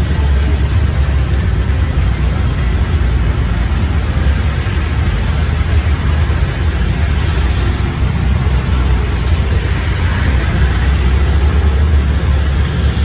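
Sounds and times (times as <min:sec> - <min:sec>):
rain hiss: 0:00.0 - 0:13.0
traffic rumble on wet road: 0:00.0 - 0:13.0.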